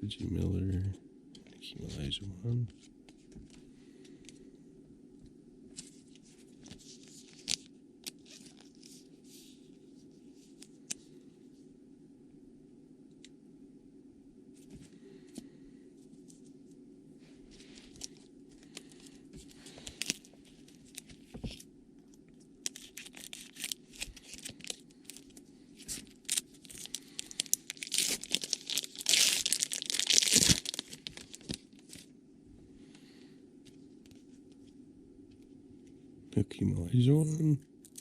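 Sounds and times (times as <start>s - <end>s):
wrapper crinkling and tearing: 6.9s - 8.9s, 17.8s - 21.3s, 22.6s - 32.1s.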